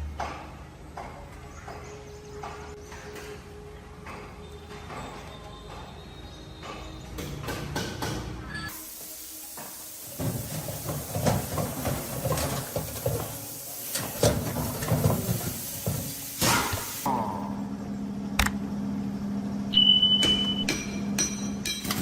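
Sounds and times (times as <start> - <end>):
steady hiss: 8.7 - 17.1
knocks and clatter: 10.2 - 16.2.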